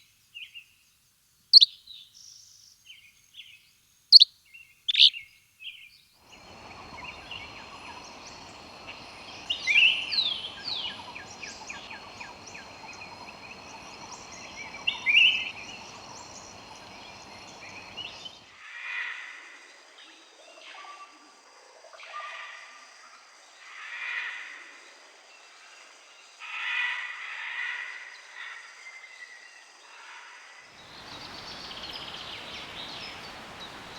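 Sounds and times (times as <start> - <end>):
lower bird calls: 6.3 - 18.5, 30.8 - 33.9
wild birds calling: 6.3 - 18.5, 30.8 - 33.9
steady high whine: 6.4 - 18.4.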